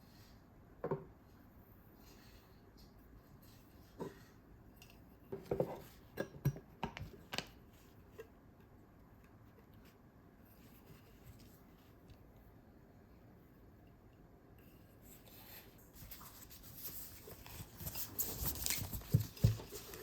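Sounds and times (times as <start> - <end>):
objects being handled: 14.9 - 20.0.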